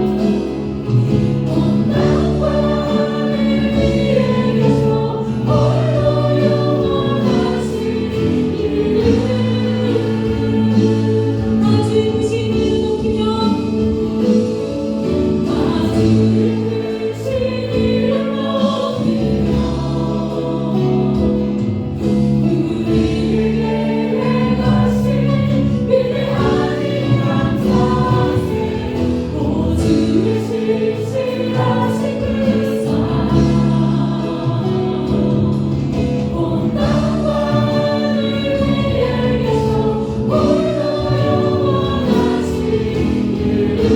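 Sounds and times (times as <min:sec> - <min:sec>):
choir singing worship song: 0:00.0 - 0:43.9
instrumental accompaniment: 0:00.0 - 0:43.9.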